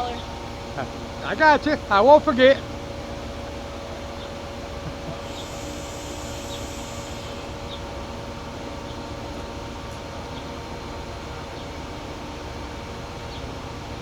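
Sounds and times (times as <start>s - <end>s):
diesel locomotive idling: 0.0s - 14.0s
high hiss: 4.8s - 9.0s.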